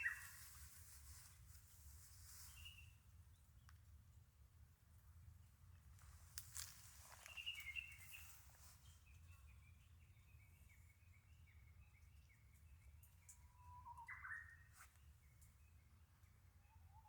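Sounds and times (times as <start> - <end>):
bird chirping: 0.0 - 0.5, 7.2 - 17.0.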